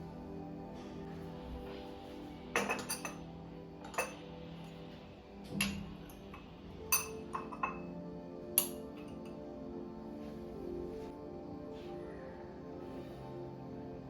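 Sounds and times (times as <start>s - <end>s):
soft background music: 0.0s - 14.0s
kitchenware clinking: 2.5s - 4.2s, 5.5s - 5.9s, 6.9s - 7.9s.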